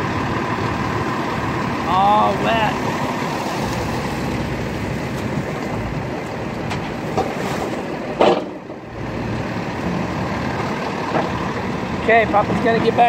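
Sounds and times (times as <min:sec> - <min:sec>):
excavator diesel engines running: 0:00.0 - 0:13.0
loud clank: 0:08.2 - 0:08.7.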